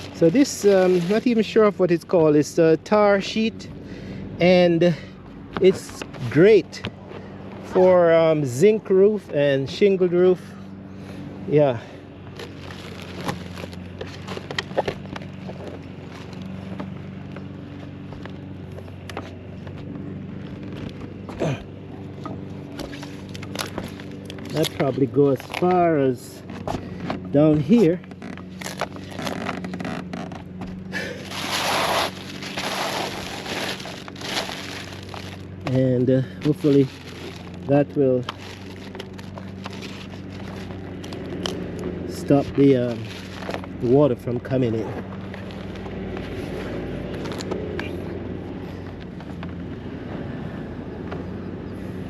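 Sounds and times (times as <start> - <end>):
roofing sheet rustling and scraping: 0.0 - 1.6, 31.0 - 35.5, 36.5 - 40.9
low motor drone: 0.0 - 52.0.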